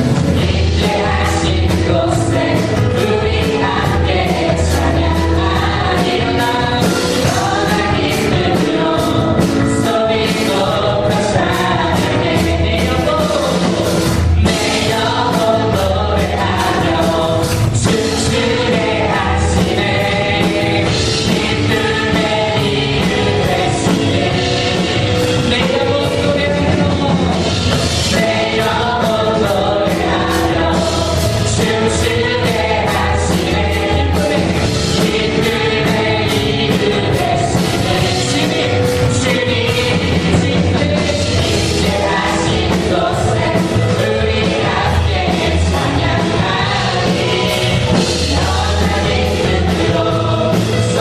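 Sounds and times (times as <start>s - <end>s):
full band playing: 0.0s - 51.0s
group singing worship song: 0.0s - 51.0s
steady drum beat: 0.0s - 51.0s.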